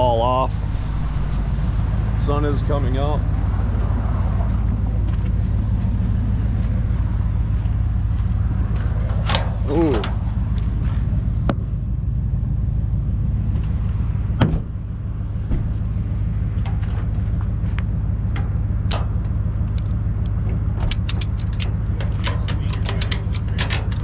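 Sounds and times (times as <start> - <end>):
vehicle engine idling: 0.0 - 24.0
ratchet strap clicks: 20.8 - 24.0.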